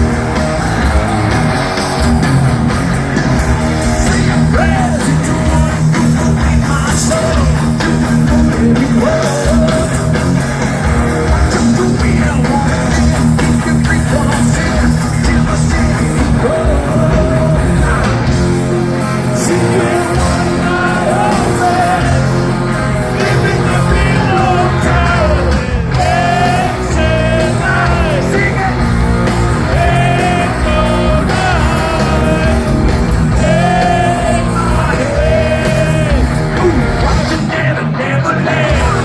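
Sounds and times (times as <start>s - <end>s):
heavy rock music: 0.0s - 39.0s
person singing: 3.8s - 10.3s, 29.6s - 39.0s.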